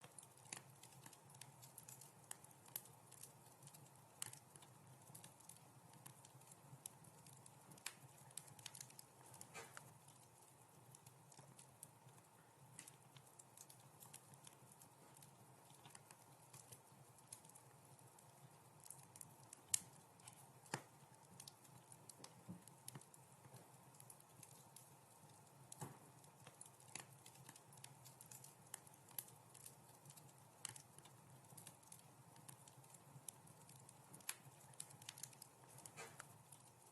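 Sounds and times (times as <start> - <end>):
wood fire crackling and popping: 0.0 - 36.9.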